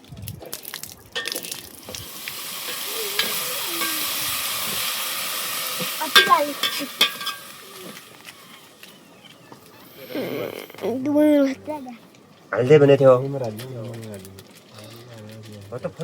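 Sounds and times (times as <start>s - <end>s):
food sizzling in a pan: 0.7s - 10.2s
metal utensil knocking pan: 2.7s - 4.3s, 5.8s - 7.5s.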